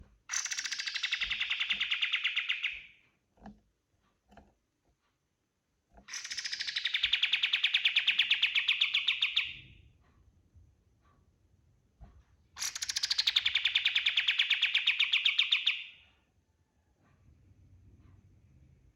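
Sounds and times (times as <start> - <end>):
bird singing fast repeated notes: 0.3 - 3.0, 6.1 - 9.7, 12.6 - 16.0.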